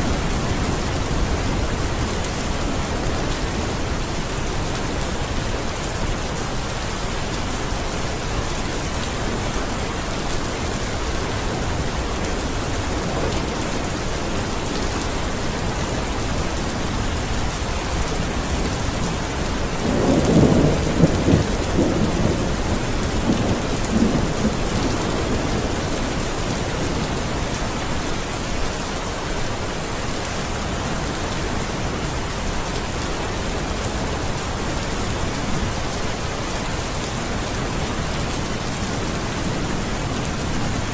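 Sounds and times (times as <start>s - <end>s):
steady rain hiss: 0.0s - 40.9s
low thunder rumble: 18.4s - 27.4s.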